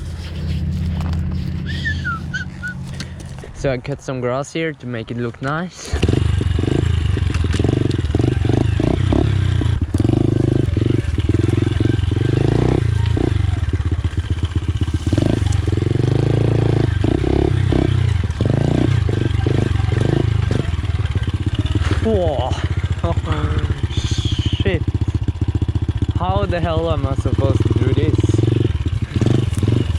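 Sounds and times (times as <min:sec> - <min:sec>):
pit bike engine revving: 0:00.0 - 0:03.5, 0:05.9 - 0:29.9.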